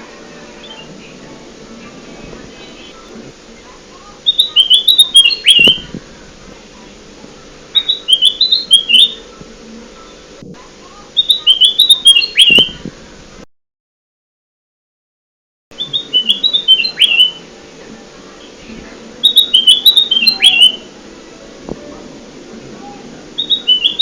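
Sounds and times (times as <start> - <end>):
bird song high chirping notes: 0.6 - 1.2, 4.2 - 6.0, 7.7 - 9.2, 11.2 - 12.8, 15.7 - 17.5, 19.2 - 20.9, 23.4 - 24.0.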